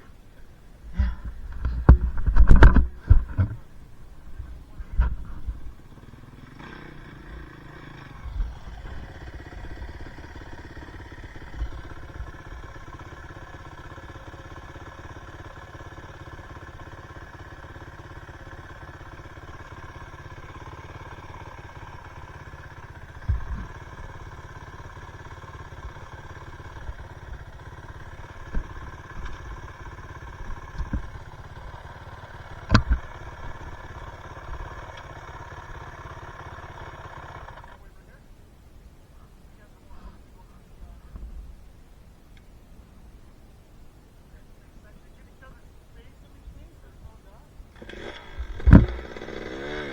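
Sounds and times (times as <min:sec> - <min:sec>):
dirt bike engine idling: 0:00.0 - 0:49.9
knocks and thumps: 0:01.0 - 0:03.6.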